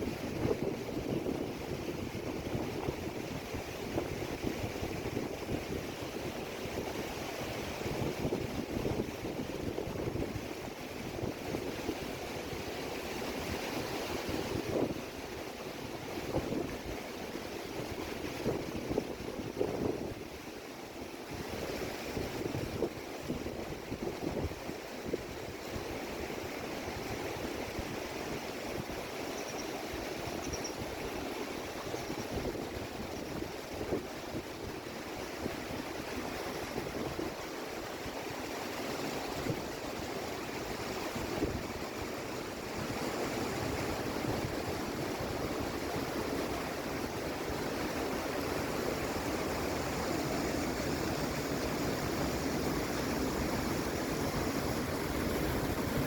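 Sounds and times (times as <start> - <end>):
river rushing: 0.0 - 56.0.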